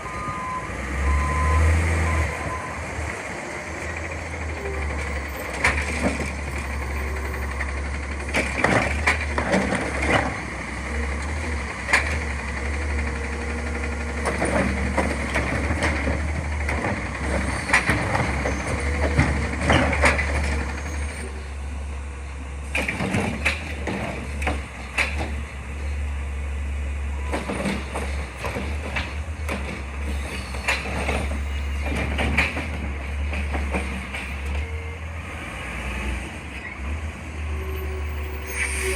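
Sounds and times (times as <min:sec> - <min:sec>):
garbage truck engine running: 0:00.0 - 0:38.9
sharp knocks and clanks: 0:27.4 - 0:34.6.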